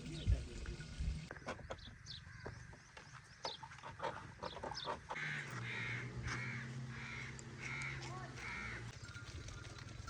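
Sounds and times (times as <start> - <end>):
birds chirping: 0.0 - 10.0
crow cawing: 5.1 - 8.9.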